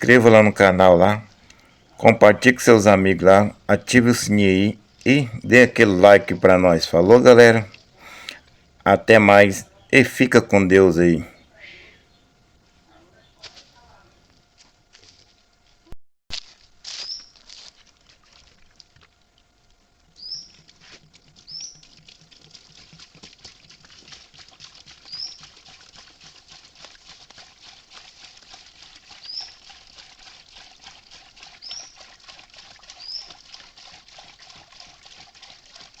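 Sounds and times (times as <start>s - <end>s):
crackling patter: 12.6s - 36.0s
bird high call: 17.0s - 17.3s, 20.2s - 20.6s, 21.5s - 21.9s, 25.1s - 25.4s, 33.0s - 33.3s.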